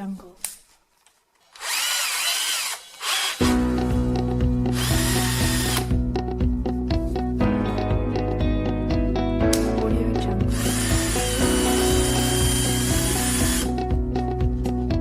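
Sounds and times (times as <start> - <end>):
cordless drill motor whining: 1.5 - 3.5, 4.8 - 5.9, 10.5 - 13.7
background music with bass: 3.4 - 15.0.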